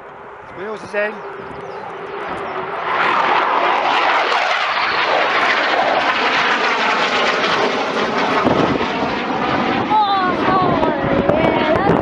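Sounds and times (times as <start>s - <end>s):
faint falling whines: 0.0s - 8.5s
loud jet engine noise: 0.0s - 12.0s.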